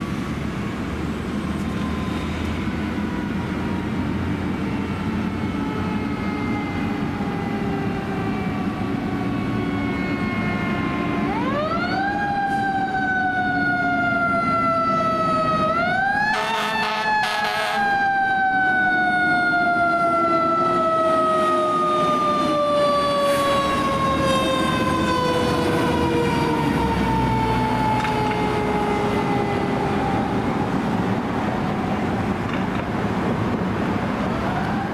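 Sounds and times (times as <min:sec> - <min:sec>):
truck engine rumble: 0:00.0 - 0:16.2, 0:18.2 - 0:34.9
horn blasts: 0:16.3 - 0:18.0.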